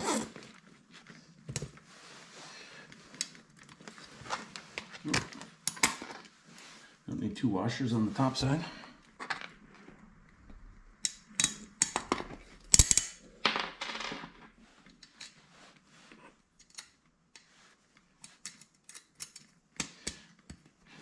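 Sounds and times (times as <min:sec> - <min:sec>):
metal hardware clicking and clinking: 0:11.0 - 0:13.3, 0:16.6 - 0:17.0, 0:18.4 - 0:20.2.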